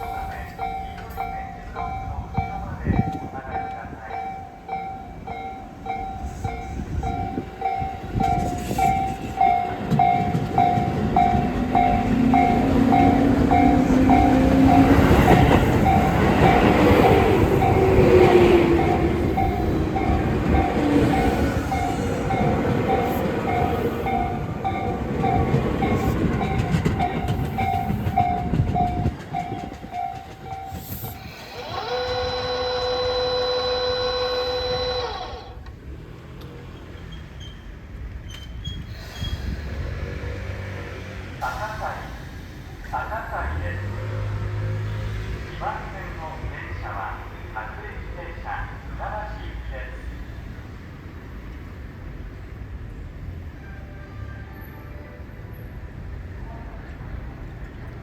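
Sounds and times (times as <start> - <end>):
train wheels clattering: 6.5 - 32.4
train motor whine: 30.4 - 36.0
steady held tone: 31.0 - 35.7.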